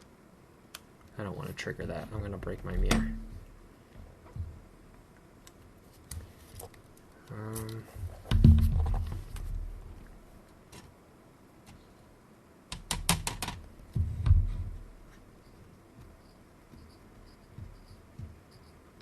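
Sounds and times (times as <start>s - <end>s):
small sharp clicks: 0.7s - 1.2s
dull bump: 8.1s - 9.7s, 14.0s - 15.0s.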